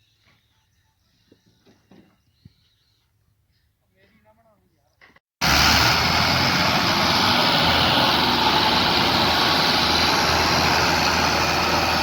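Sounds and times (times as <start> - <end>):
engine running with low hum: 5.4 - 12.0.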